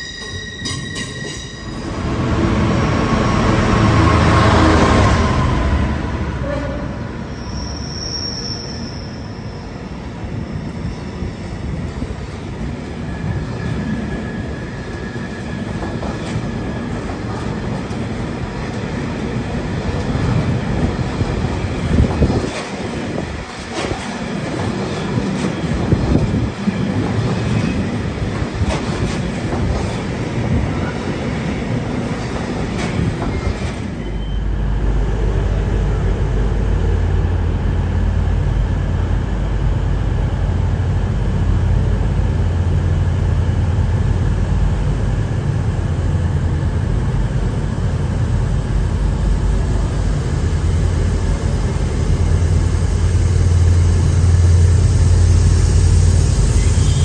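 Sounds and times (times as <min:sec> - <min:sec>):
train low hum: 0:00.0 - 0:57.0
high wheel squeals: 0:07.3 - 0:09.8, 0:56.4 - 0:57.0.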